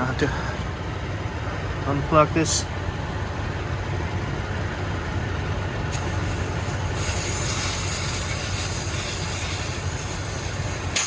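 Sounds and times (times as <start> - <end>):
air compressor running: 5.6 - 11.0
air hissing from hose: 5.9 - 11.0.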